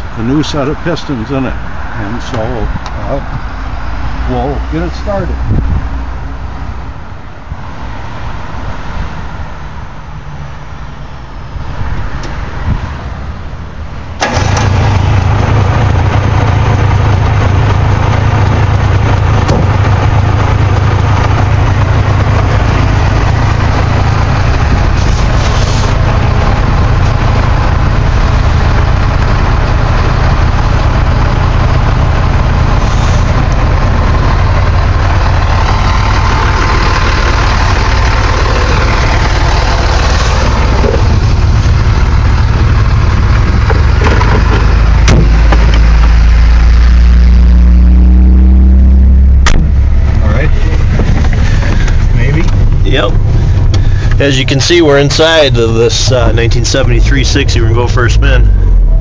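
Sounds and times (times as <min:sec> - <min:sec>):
two-stroke engine starting and idling: 0:14.2 - 0:24.9, 0:26.0 - 0:45.3.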